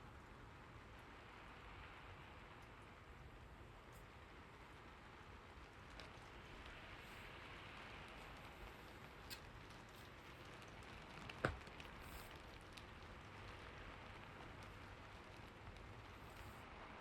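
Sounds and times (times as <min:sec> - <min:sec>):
soft rain hiss: 0:00.0 - 0:17.0.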